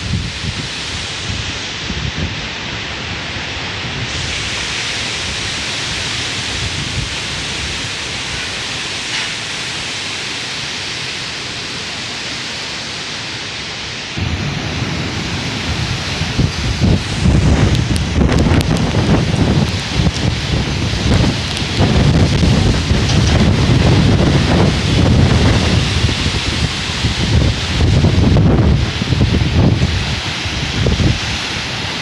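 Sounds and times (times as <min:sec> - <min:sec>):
heavy rain: 0:00.0 - 0:32.0
wind buffeting microphone: 0:05.2 - 0:08.5, 0:14.2 - 0:32.0.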